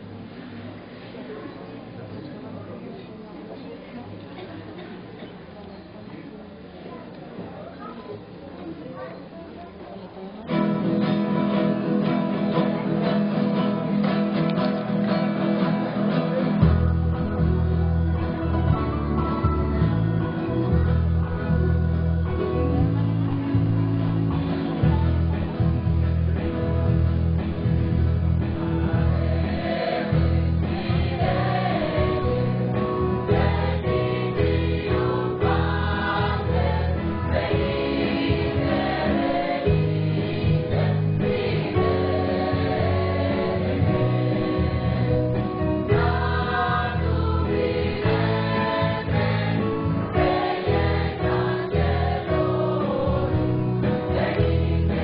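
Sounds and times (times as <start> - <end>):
instrumental accompaniment: 10.5 - 55.0
choir singing: 28.6 - 55.0.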